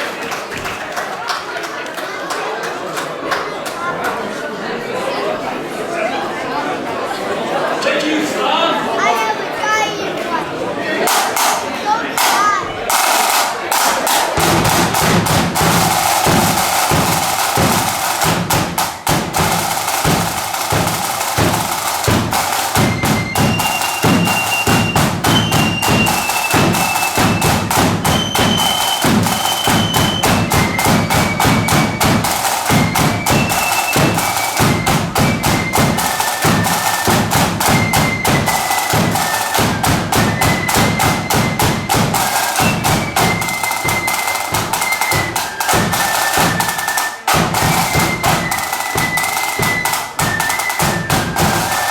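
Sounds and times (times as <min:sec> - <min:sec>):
snare drums rattling: 0:11.1 - 0:51.9.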